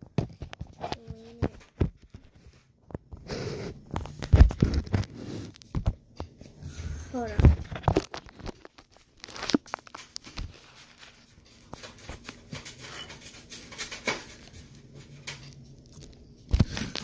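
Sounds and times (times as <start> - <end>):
device handling rustles: 7.5 - 14.7.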